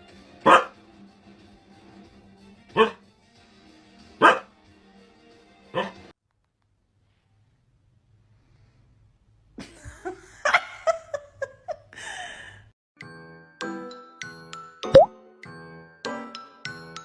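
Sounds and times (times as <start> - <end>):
plinking background music: 13.1 - 15.2.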